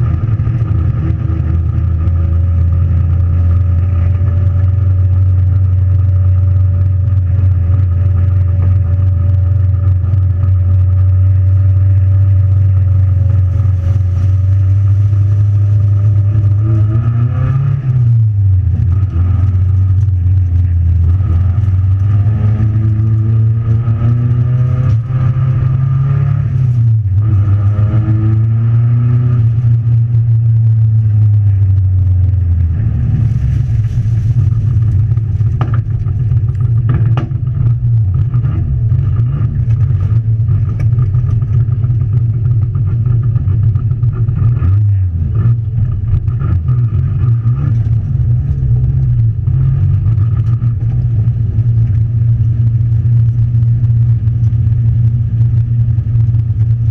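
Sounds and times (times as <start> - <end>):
race car engine revving: 0.0 - 56.9
clicks and rattles in car: 34.2 - 45.0.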